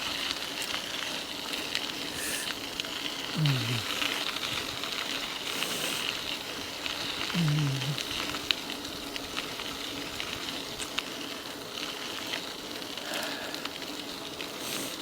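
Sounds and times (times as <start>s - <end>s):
bike tyres rolling over rough trail: 0.0s - 15.0s
stones clicking under wheels: 0.0s - 15.0s
rider low vocal sound: 3.3s - 4.1s, 7.2s - 8.2s.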